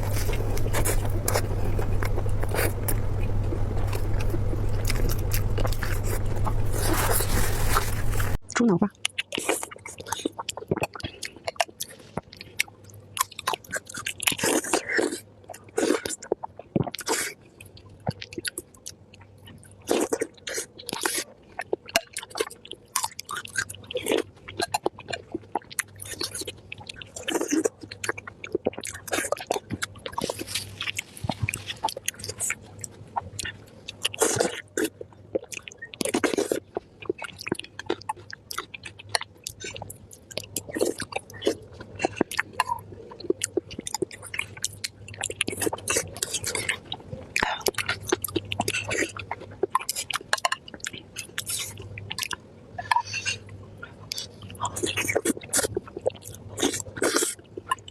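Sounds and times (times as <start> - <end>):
soft chewing clicks: 0.0 - 57.9.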